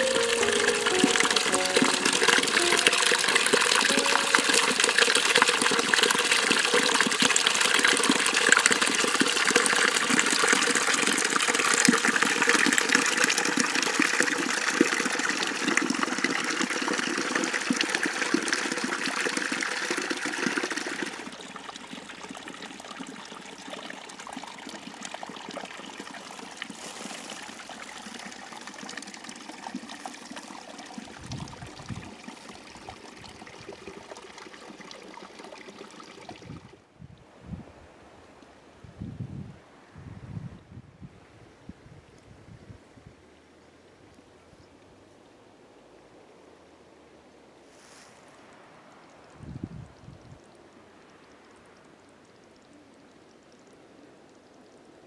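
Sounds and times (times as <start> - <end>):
water rushing along ditch: 0.0 - 36.8.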